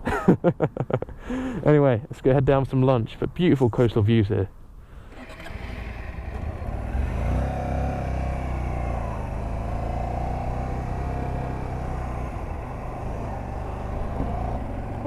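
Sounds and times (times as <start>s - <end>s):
motorcycle engine pulling away: 5.1s - 15.0s.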